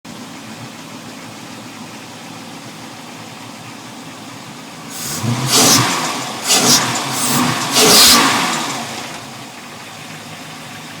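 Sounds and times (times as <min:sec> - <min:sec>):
boat engine idling and revving: 0:04.9 - 0:11.0.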